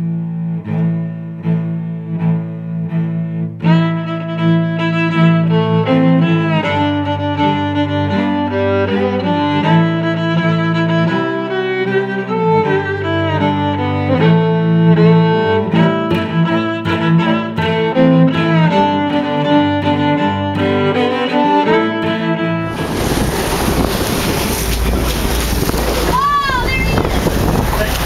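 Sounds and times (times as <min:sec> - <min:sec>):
instrumental string music: 0:00.0 - 0:28.0
wind and water rushing: 0:22.6 - 0:28.0.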